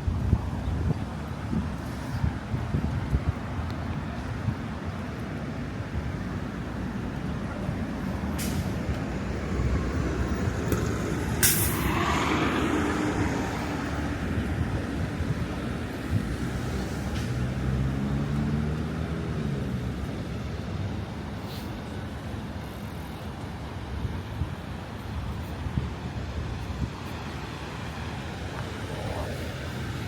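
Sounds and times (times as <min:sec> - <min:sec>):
street traffic rumbling: 0:00.0 - 0:30.0
heavy engine speeding up: 0:08.0 - 0:20.6, 0:27.5 - 0:30.0
air brakes hissing: 0:08.3 - 0:08.9, 0:11.4 - 0:12.5, 0:21.4 - 0:21.8.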